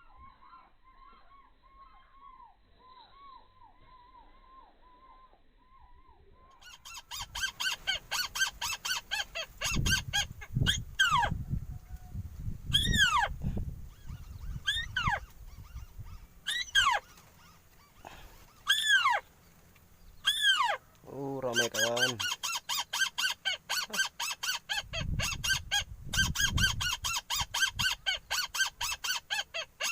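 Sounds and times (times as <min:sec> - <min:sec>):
fast short bird calls: 0:06.6 - 0:11.4, 0:12.7 - 0:19.3, 0:20.1 - 0:29.9.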